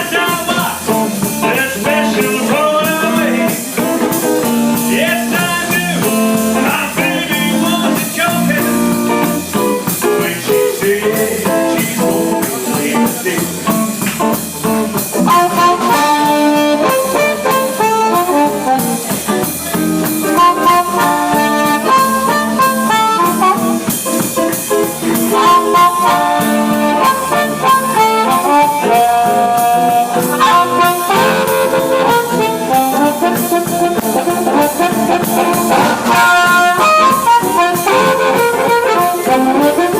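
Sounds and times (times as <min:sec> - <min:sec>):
drum beat: 0:00.0 - 0:39.9
electric guitar: 0:00.0 - 0:39.9
horns playing: 0:15.2 - 0:39.9.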